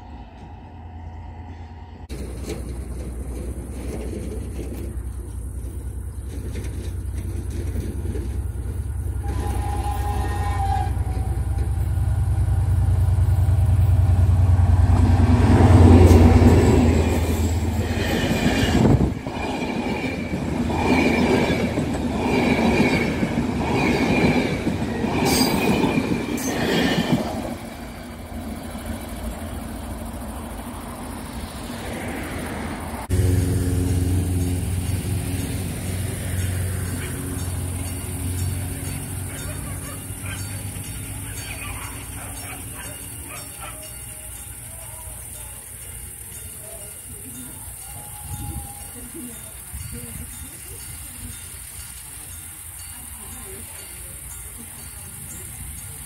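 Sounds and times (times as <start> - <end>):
locomotive engine rumble: 0.0 - 56.0
train wheels clacking on rail joints: 2.1 - 29.5.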